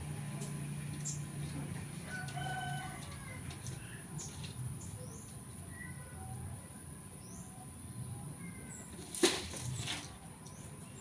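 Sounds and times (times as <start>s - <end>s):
small birds chirping: 0.3s - 1.5s, 3.2s - 11.0s.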